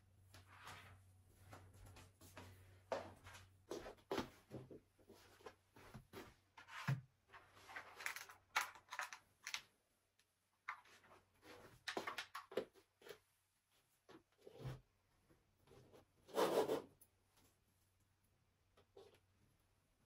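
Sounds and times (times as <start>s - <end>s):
objects being handled: 5.2s - 9.7s.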